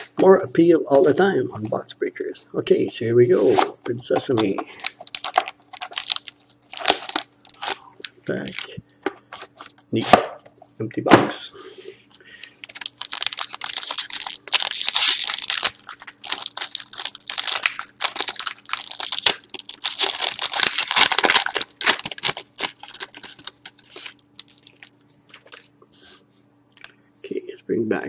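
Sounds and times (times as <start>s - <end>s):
card pack wrapper tearing and crinkling: 4.8s - 8.7s, 12.6s - 25.6s.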